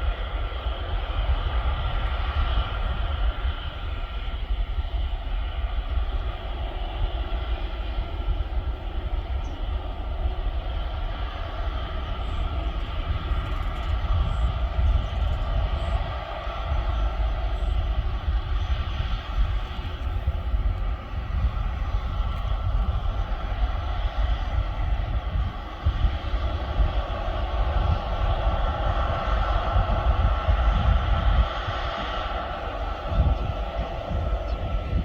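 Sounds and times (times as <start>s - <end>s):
jet engines whining: 0.0s - 35.0s.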